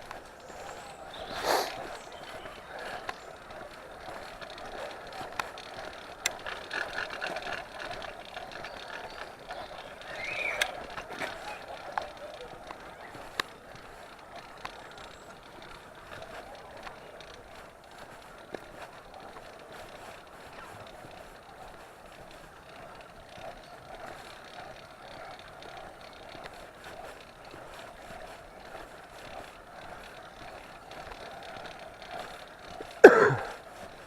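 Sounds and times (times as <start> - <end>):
motorised bicycle engine: 0.0 - 34.0.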